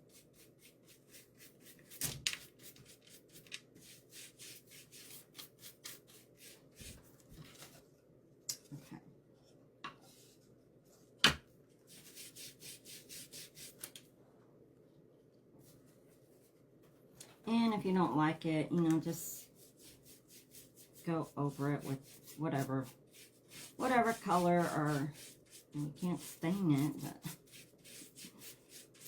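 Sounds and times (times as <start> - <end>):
brush scrubbing on wood: 0.0 - 7.0, 11.9 - 13.8, 19.2 - 29.0.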